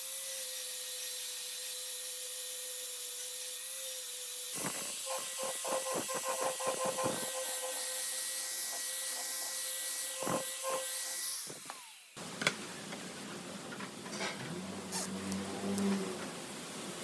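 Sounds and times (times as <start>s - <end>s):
power tool hissing and whining: 0.0s - 12.2s.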